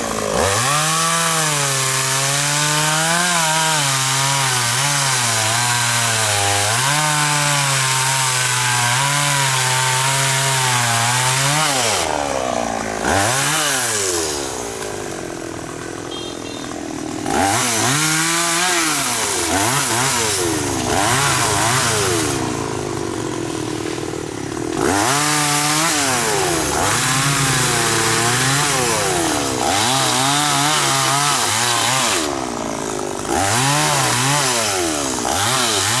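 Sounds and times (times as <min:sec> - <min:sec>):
chainsaw engine running hard: 0:00.0 - 0:36.0.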